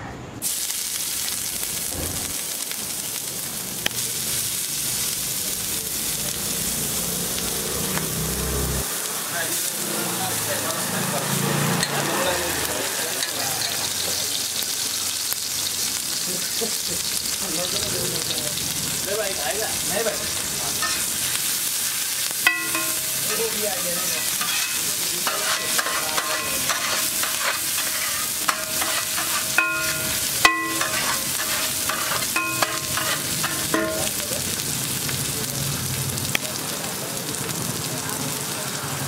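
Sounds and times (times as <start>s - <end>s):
vegetables sizzling on griddle: 0.0s - 39.0s
spatula clanking on griddle: 11.8s - 12.1s, 13.1s - 14.0s, 19.9s - 34.5s
metal spatula scraping: 20.0s - 34.2s.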